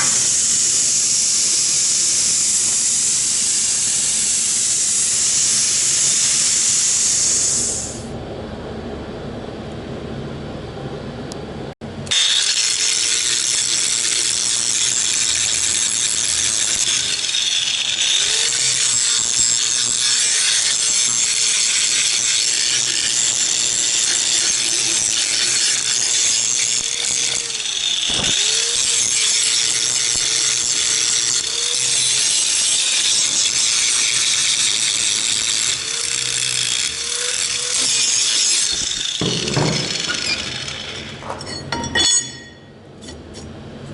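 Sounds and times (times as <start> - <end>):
electric power tool grinding metal: 0.0 - 8.0, 12.0 - 41.2.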